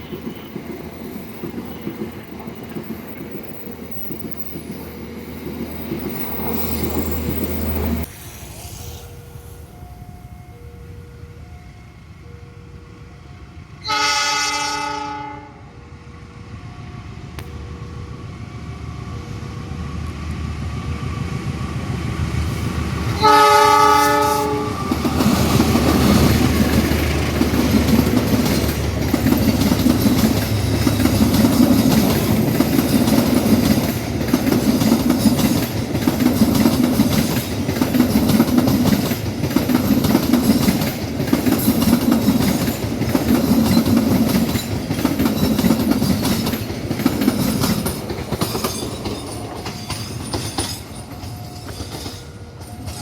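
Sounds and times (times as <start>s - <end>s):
train rumble: 0.0s - 53.0s
train horn blasts: 13.8s - 15.8s, 23.2s - 26.2s
wheels clattering over rail joints: 24.9s - 53.0s.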